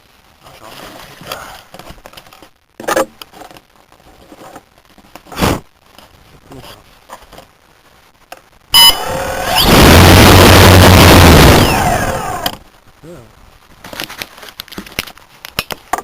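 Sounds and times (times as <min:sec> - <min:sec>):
electric motor and propeller rush: 0:09.0 - 0:12.6.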